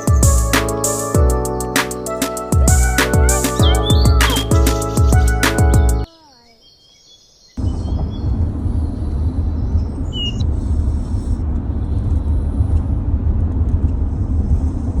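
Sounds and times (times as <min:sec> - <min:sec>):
bird chirp: 0:03.4 - 0:10.5.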